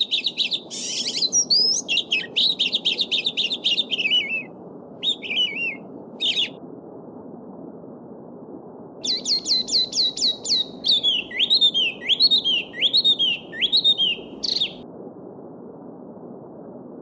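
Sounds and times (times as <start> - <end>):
songbird singing: 0.0 - 6.6, 9.0 - 14.8.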